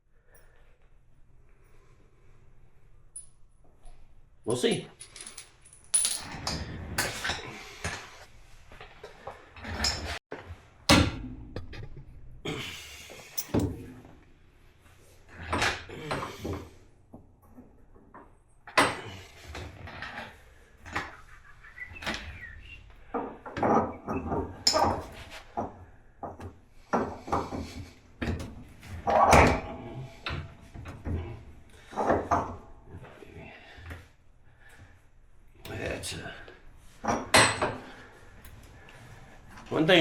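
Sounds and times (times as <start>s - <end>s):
tools and parts clanking: 4.7s - 8.2s, 13.2s - 14.1s, 23.1s - 31.2s, 37.0s - 38.1s.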